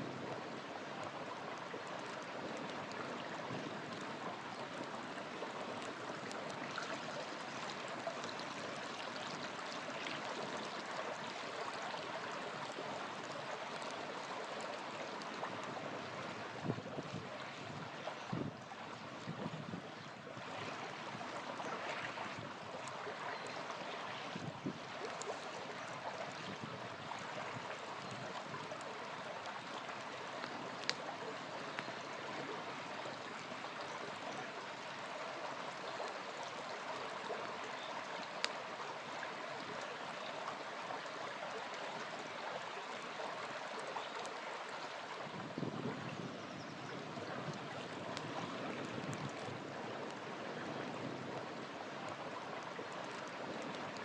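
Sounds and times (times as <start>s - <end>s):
small river flowing: 0.0s - 54.0s
campfire crackling and popping: 0.2s - 17.9s, 20.3s - 34.6s, 47.5s - 50.3s, 51.3s - 54.0s.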